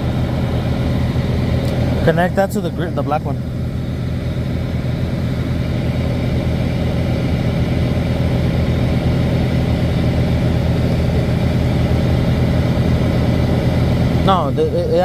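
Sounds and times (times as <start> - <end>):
truck diesel engine idling: 0.0 - 15.0.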